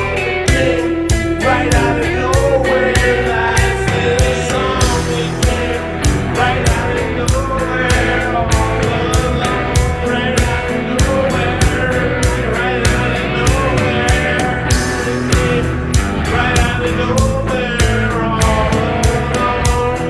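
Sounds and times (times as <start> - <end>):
rock music with sung vocals: 0.0 - 20.0.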